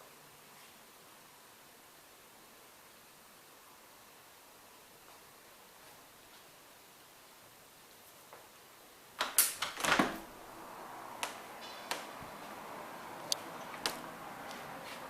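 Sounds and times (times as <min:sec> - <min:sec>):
steady hiss: 0:00.0 - 0:15.0
sharp clicks and knocks: 0:13.3 - 0:14.0.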